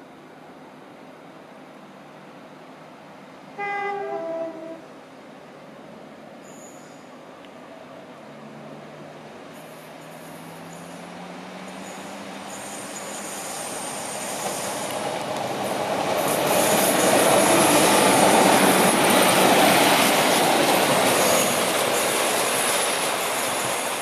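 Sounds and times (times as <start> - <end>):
diesel train engine: 5.5 - 24.0
train wheels on rails: 9.4 - 24.0.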